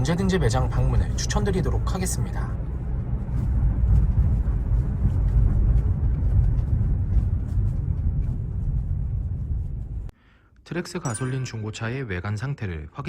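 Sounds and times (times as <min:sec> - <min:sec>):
engine and road noise: 0:00.0 - 0:10.2.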